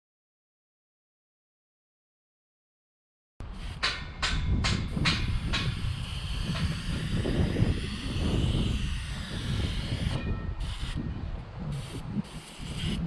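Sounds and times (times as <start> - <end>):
power tool hissing on wood: 4.8 - 11.0, 11.7 - 13.0.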